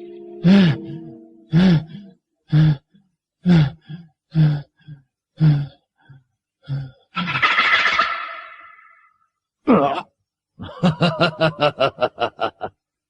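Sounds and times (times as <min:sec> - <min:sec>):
man grunting: 0:09.6 - 0:10.1.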